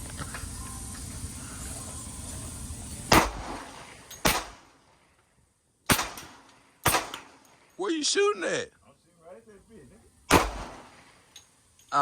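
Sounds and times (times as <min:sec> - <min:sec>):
gunshots: 0:03.1 - 0:04.8, 0:05.9 - 0:07.6, 0:10.3 - 0:11.2.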